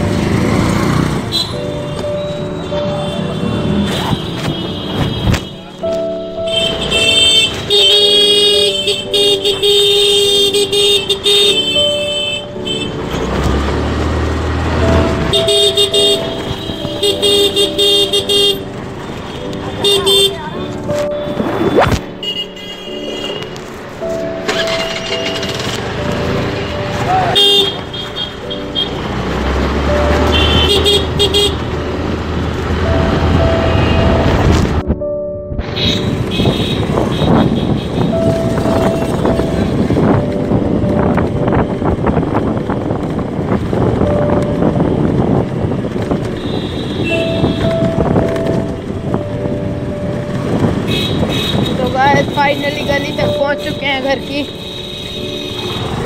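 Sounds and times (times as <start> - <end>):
engines and road noise rumbling: 0.0 - 56.0
vehicle horns honking: 1.1 - 13.4, 14.8 - 23.6, 24.4 - 25.6, 26.6 - 31.8, 32.8 - 34.8, 35.6 - 40.2, 46.2 - 48.7, 50.7 - 56.0
low vehicle rumble: 28.5 - 53.8.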